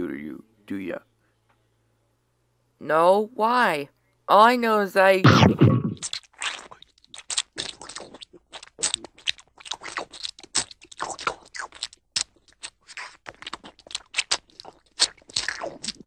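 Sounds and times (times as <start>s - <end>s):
dog crunching fish bones: 6.1s - 16.0s.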